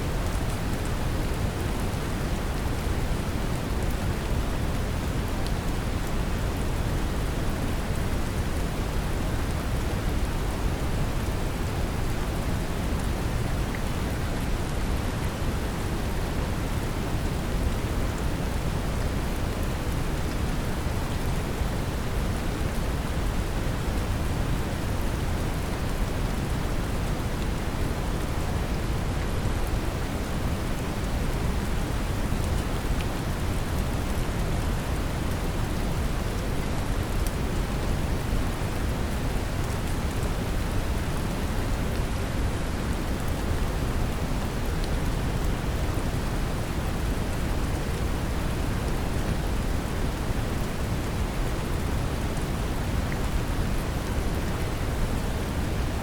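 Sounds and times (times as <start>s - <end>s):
gentle rain falling: 0.0s - 56.0s.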